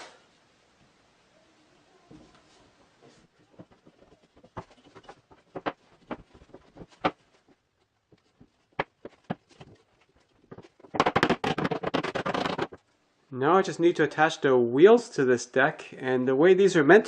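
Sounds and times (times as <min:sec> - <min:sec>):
wooden parts knocking and clicking: 0:03.5 - 0:12.8.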